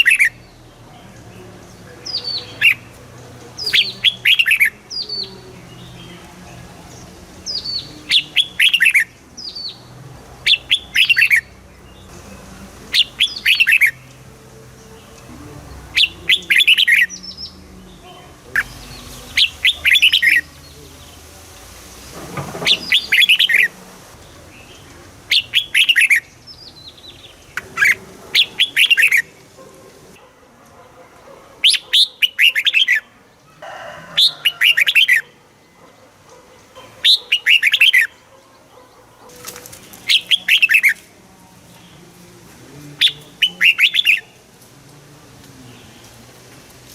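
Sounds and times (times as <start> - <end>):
bulbul singing whistled notes: 3.6 - 6.1, 6.9 - 9.9, 12.9 - 14.2, 14.8 - 17.7, 18.5 - 21.3, 22.6 - 29.4.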